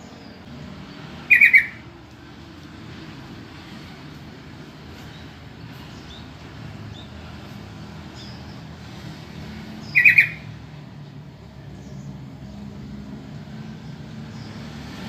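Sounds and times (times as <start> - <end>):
faint bird chirps: 0.0 - 1.8, 9.8 - 10.6
bird harsh rapid calls: 1.1 - 1.9, 9.7 - 10.7.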